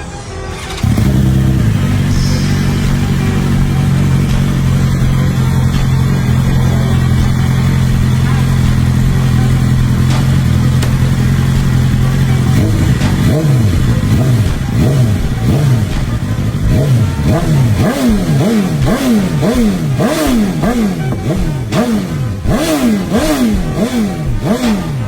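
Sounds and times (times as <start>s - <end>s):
motorcycle engine idling and revving: 0.5s - 25.0s.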